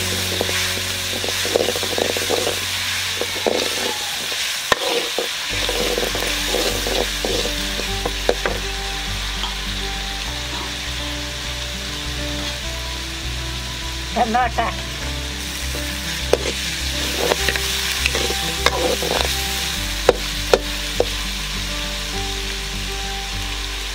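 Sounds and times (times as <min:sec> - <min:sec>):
metal ladle scraping pan: 0:00.0 - 0:08.6, 0:15.8 - 0:21.1
onions sizzling in hot oil: 0:00.0 - 0:23.9.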